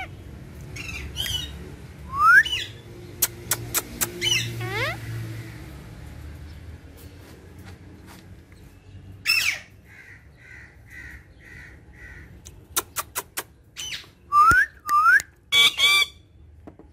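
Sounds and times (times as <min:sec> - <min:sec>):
parrot squawking: 0:00.0 - 0:00.2, 0:03.5 - 0:05.2, 0:09.2 - 0:14.1, 0:15.5 - 0:16.2
parrot whistled calls: 0:02.1 - 0:02.8, 0:13.8 - 0:16.2.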